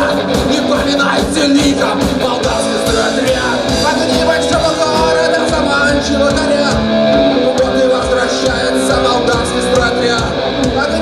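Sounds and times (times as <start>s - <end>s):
rock band music: 0.0s - 11.0s.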